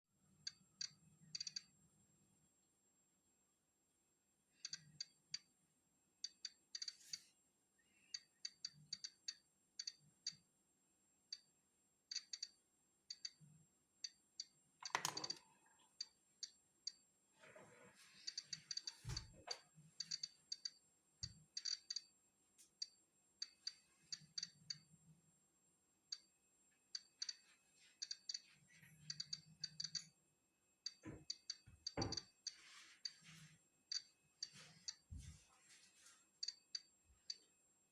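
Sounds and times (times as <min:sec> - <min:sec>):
geiger counter clicking: 0:00.5 - 0:01.7, 0:04.6 - 0:05.5, 0:06.2 - 0:07.2, 0:08.2 - 0:10.4, 0:12.1 - 0:13.4, 0:14.0 - 0:17.0, 0:20.0 - 0:22.1, 0:22.8 - 0:24.9, 0:27.0 - 0:27.4, 0:28.0 - 0:28.4, 0:29.1 - 0:30.2, 0:30.9 - 0:33.2, 0:33.9 - 0:35.0, 0:36.4 - 0:37.4.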